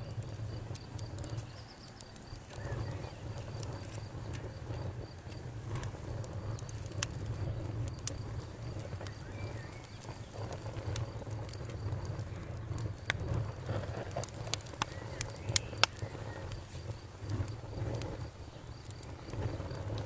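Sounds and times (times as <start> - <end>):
campfire crackling and popping: 0.0 - 20.0
low steady rumble: 0.0 - 20.0.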